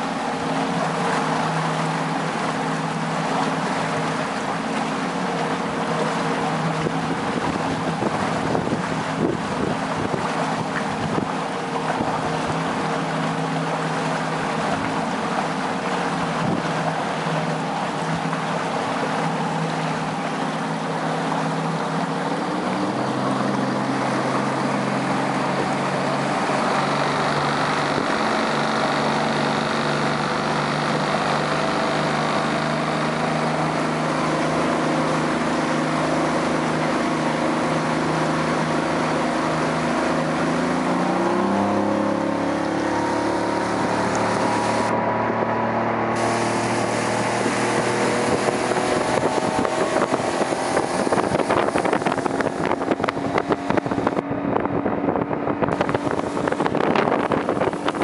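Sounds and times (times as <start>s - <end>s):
outboard motor running: 0.0s - 58.0s
rushing water: 0.0s - 58.0s
wind noise: 6.8s - 12.6s, 46.2s - 58.0s.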